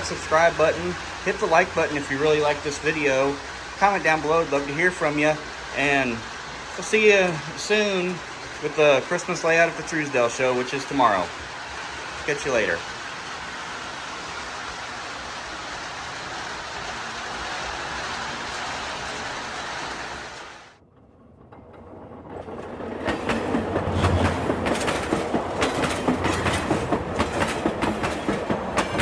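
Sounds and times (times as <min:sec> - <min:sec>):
model train wheels clicking: 0:00.0 - 0:20.5, 0:22.6 - 0:29.0
steady rushing noise: 0:00.0 - 0:20.8.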